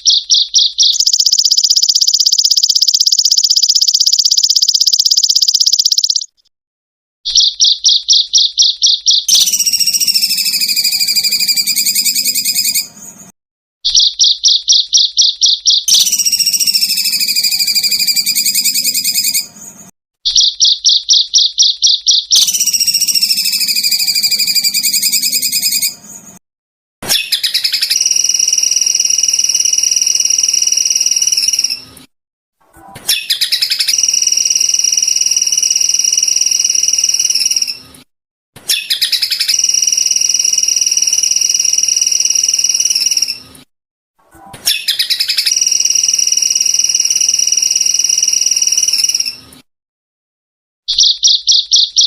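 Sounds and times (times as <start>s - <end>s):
recorded songbird song: 0.0s - 6.5s, 7.3s - 26.4s, 27.0s - 31.9s, 32.8s - 37.8s, 38.6s - 43.5s, 44.4s - 49.4s, 50.9s - 52.0s.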